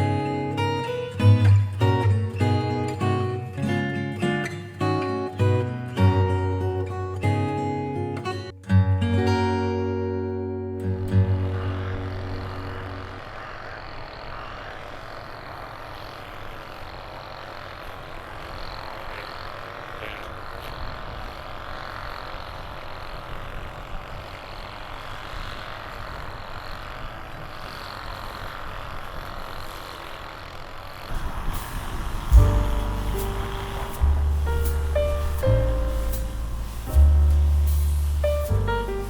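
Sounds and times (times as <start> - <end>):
road noise: 10.0 - 39.0
car engine: 10.7 - 39.0.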